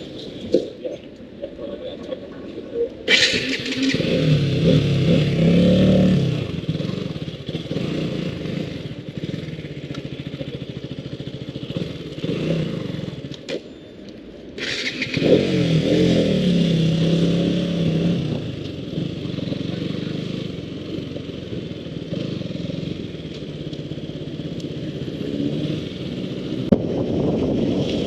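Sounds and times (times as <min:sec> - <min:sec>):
motorcycle engine revving: 0:03.1 - 0:13.6, 0:14.6 - 0:28.0
wind noise: 0:26.5 - 0:28.0.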